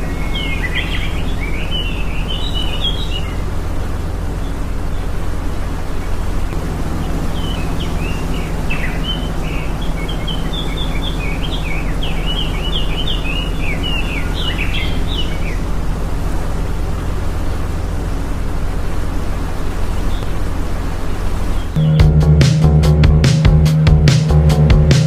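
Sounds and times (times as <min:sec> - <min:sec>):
small bird chirping: 0:00.0 - 0:16.0, 0:19.6 - 0:22.0.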